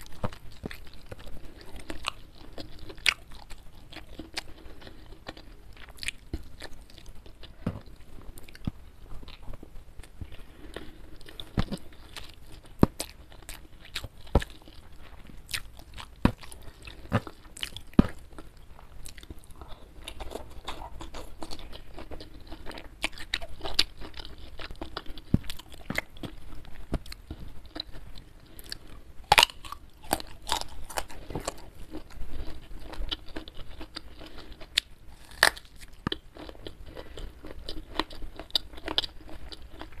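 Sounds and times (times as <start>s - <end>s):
chewing with wet mouth noises: 0.0s - 40.0s
crisp crunches of biting: 28.6s - 40.0s.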